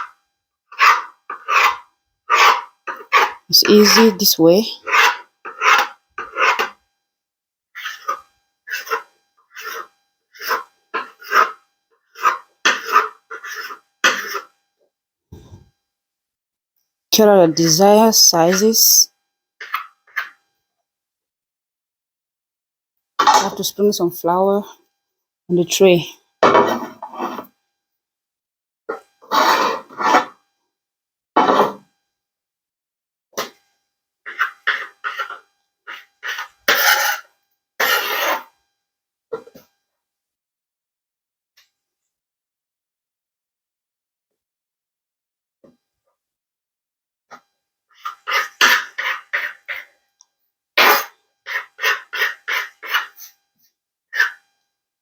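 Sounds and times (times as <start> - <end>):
dough scraping on a board: 0.7 - 6.8, 7.8 - 14.6, 19.6 - 20.4, 26.5 - 27.5, 28.9 - 30.4, 31.4 - 31.9, 34.3 - 38.5, 48.0 - 50.0, 50.8 - 53.4, 54.2 - 54.5.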